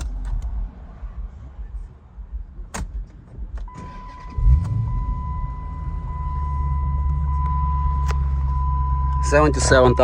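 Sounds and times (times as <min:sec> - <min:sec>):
engine starting with rev flare: 0:03.7 - 0:06.1.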